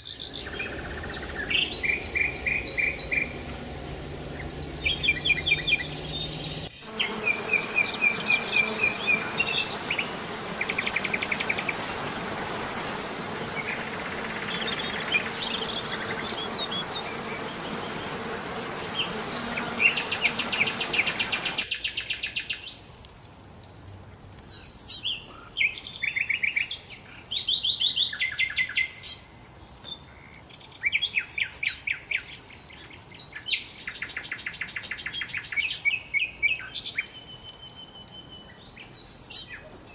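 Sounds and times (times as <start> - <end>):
steady rushing noise: 0.0 - 6.8
songbirds trilling: 0.0 - 22.8, 24.4 - 39.9.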